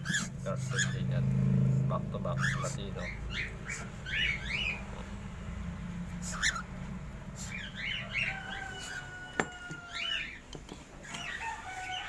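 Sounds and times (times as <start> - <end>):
birds chirping: 0.0 - 12.0
rooster crowing: 7.8 - 10.4, 11.2 - 12.0.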